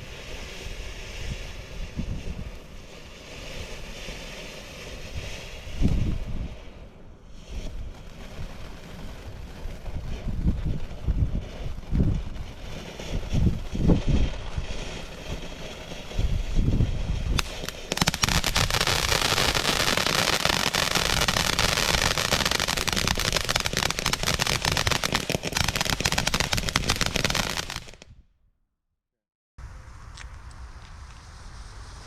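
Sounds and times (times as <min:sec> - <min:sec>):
rapid firework crackling: 0:00.0 - 0:28.0
firework low thumps: 0:09.8 - 0:28.1.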